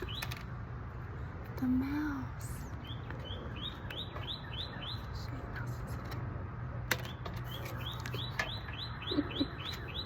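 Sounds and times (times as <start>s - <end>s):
small bird chirping: 0.0s - 0.5s, 2.6s - 5.8s, 7.1s - 10.0s.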